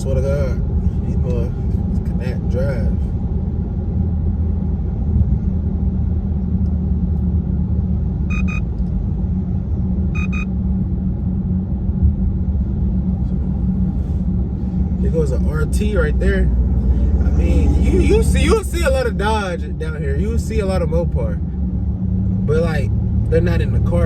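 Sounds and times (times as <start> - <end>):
car engine rumble: 0.0 - 24.0
road noise: 0.0 - 24.0
short electronic beeps: 8.3 - 8.7, 10.1 - 10.5.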